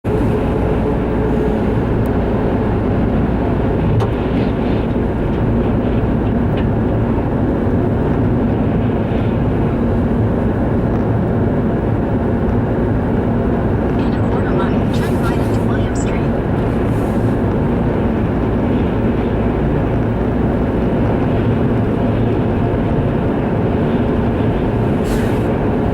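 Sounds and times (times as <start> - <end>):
strong wind roaring: 0.0 - 25.9.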